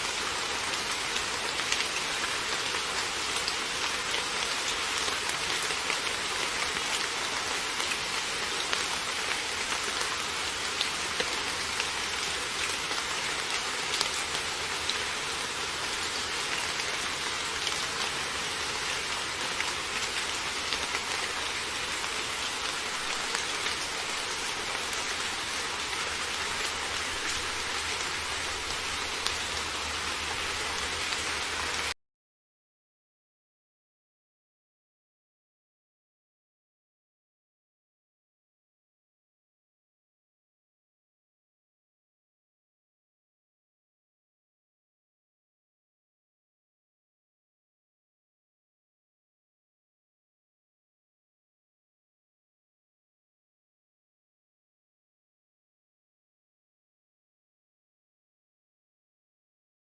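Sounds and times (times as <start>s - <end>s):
heavy rain falling: 0.0s - 32.0s.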